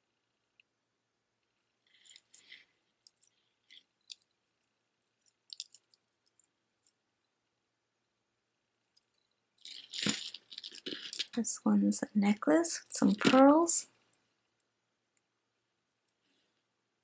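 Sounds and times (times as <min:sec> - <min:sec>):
jewelry rustling: 0:01.4 - 0:07.4, 0:08.8 - 0:14.7
beads and charms clinking: 0:01.9 - 0:07.0, 0:08.9 - 0:11.7, 0:12.3 - 0:13.9.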